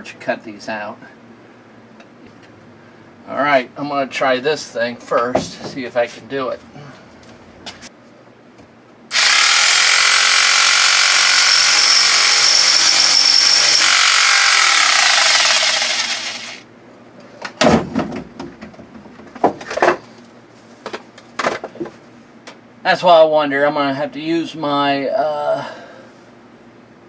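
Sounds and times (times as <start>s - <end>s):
sharp knocks and clatters: 5.2s - 5.9s, 17.4s - 20.1s
power cutting tool whining: 9.1s - 16.6s.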